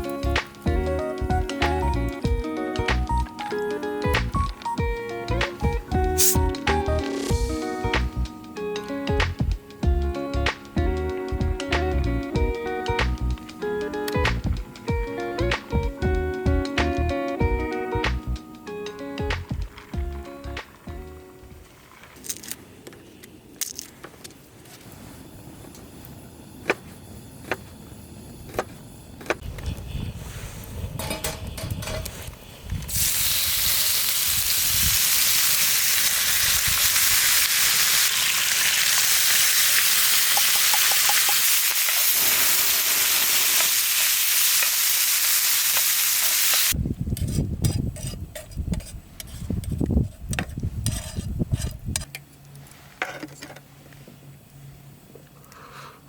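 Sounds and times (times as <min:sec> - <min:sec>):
vegetables sizzling in a pan: 0:32.9 - 0:46.8.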